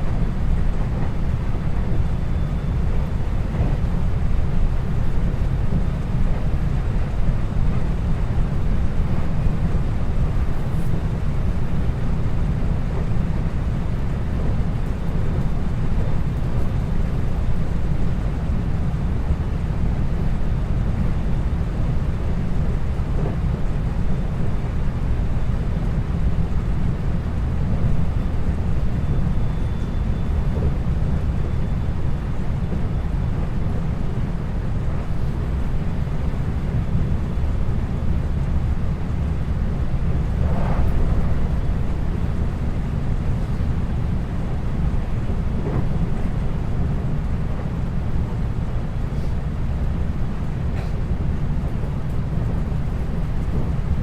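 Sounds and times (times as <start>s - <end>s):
train wheels rumbling on rails: 0.0s - 54.0s
rushing noise: 40.0s - 43.6s.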